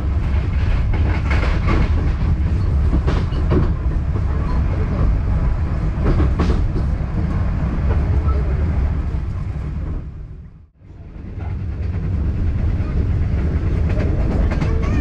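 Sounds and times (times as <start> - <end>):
wheel clatter over rails: 0.0 - 5.2
train low rumble: 0.0 - 15.0.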